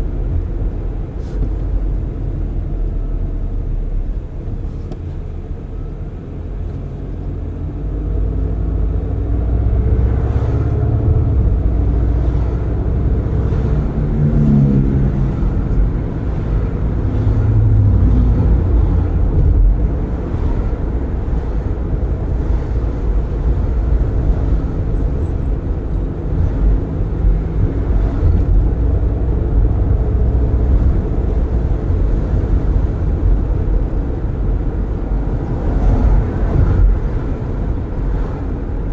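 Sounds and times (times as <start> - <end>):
road and tyre rumble: 0.0 - 38.9
car engine speeding up: 9.3 - 21.9.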